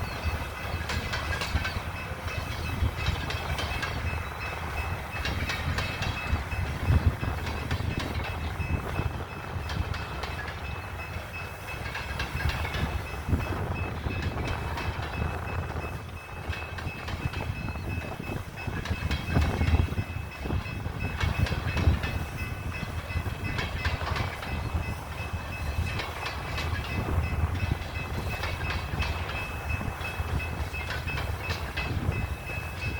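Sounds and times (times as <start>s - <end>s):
train rumbling on rails: 0.0s - 32.9s
train wheel clicks and clatter: 0.0s - 32.9s.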